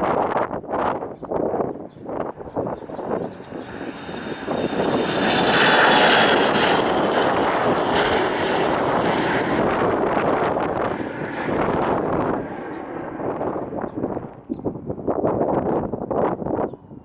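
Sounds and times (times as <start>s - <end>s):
airliner engines passing: 0.0s - 17.0s.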